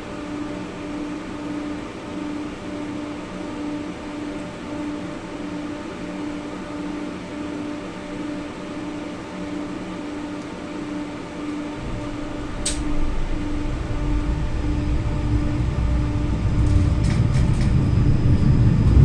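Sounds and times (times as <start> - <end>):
machinery hum: 8.7 - 19.0
pulsing electrical hum: 10.7 - 19.0
tram rumbling on rails: 11.4 - 19.0.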